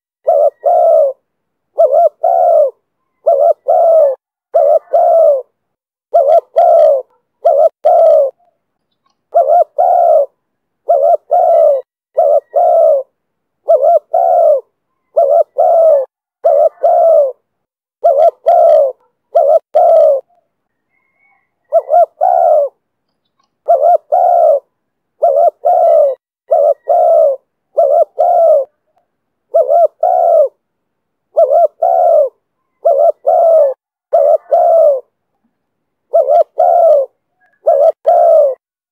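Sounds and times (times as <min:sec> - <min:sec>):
dove cooing: 0:00.0 - 0:08.5, 0:09.3 - 0:17.4, 0:18.0 - 0:22.8, 0:23.6 - 0:30.6, 0:31.3 - 0:35.2, 0:36.1 - 0:38.6.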